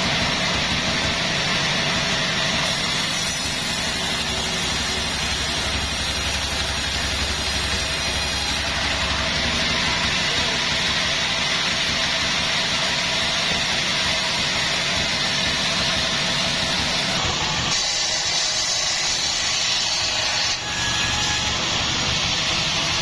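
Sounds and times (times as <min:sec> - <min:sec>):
low machine running: 0:00.0 - 0:17.7
sawmill saw cutting log: 0:00.0 - 0:23.0.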